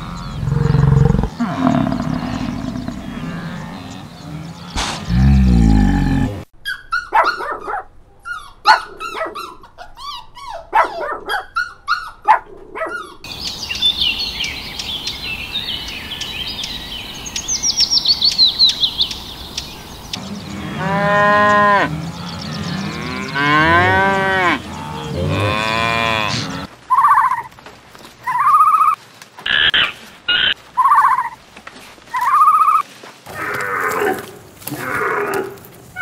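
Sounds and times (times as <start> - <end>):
cattle mooing: 0.0 - 6.4, 20.2 - 26.7.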